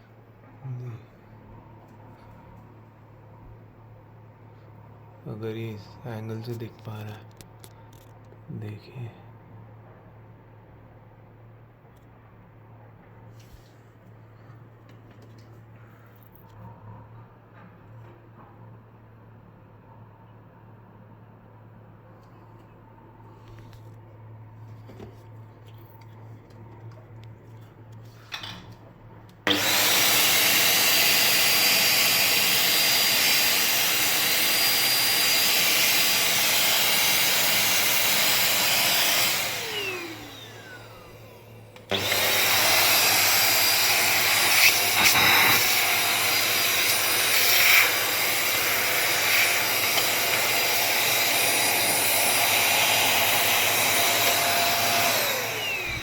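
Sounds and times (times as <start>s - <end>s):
handheld vacuum cleaner whine: 29.4s - 56.0s.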